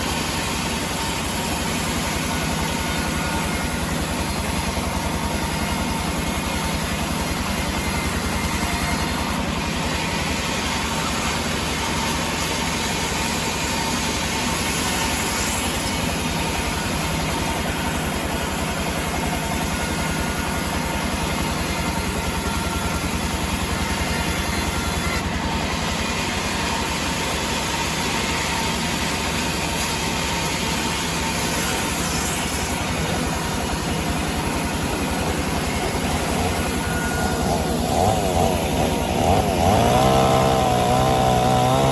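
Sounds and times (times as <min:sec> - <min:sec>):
sawmill machinery humming: 0:00.0 - 0:41.9.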